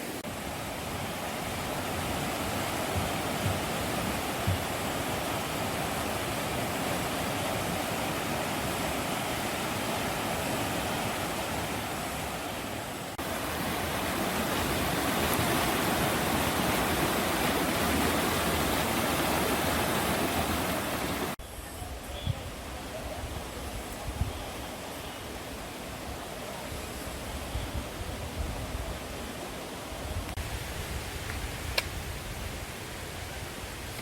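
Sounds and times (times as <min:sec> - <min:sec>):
stream rushing over rocks: 0:00.0 - 0:21.4.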